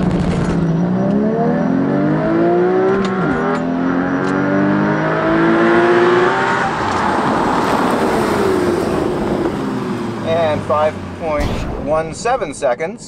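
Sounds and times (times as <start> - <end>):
car engine accelerating hard: 0.0 - 11.4.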